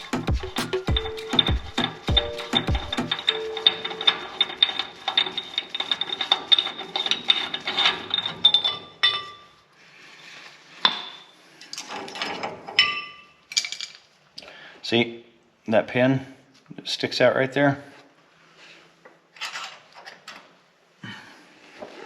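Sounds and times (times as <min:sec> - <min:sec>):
metal parts clinking: 0:00.8 - 0:09.4, 0:11.0 - 0:14.1.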